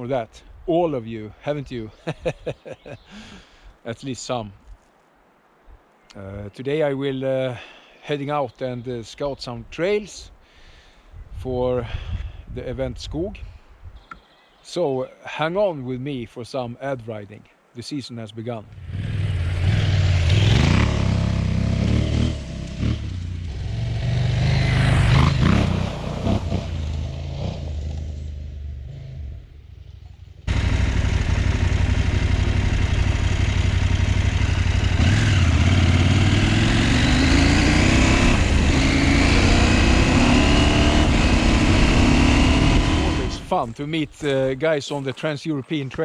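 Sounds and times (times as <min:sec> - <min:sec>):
motorcycle engine revving: 0:18.8 - 0:43.5.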